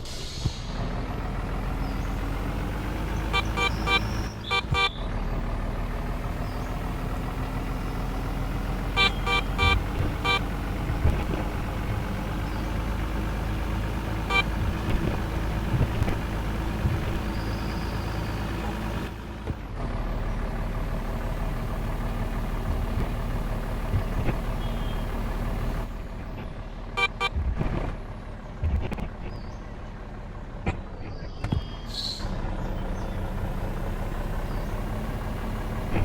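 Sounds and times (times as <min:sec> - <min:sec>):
truck engine running: 0:00.0 - 0:36.0
truck horn short beeps: 0:03.2 - 0:05.1, 0:08.8 - 0:10.6, 0:14.2 - 0:14.8, 0:24.5 - 0:25.3, 0:27.0 - 0:27.4.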